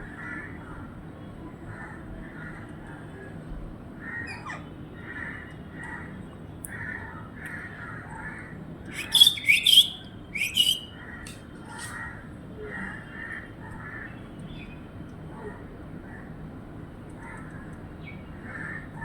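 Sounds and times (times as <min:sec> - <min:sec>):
birds calling in background: 0:01.6 - 0:16.4, 0:17.1 - 0:19.0
parrot squawking harshly: 0:09.0 - 0:10.9.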